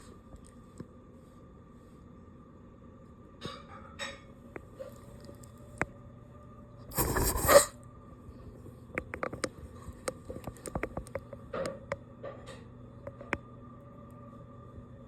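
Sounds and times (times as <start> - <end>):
faint steady hum: 0.0 - 15.0
dog breath burst: 6.9 - 7.7.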